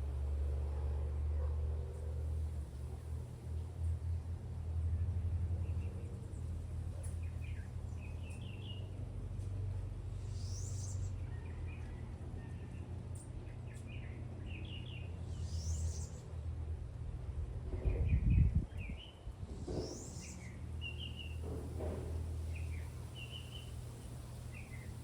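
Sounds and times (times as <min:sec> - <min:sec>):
steady low rumble: 0:16.2 - 0:25.0
birds chirping: 0:22.1 - 0:25.0.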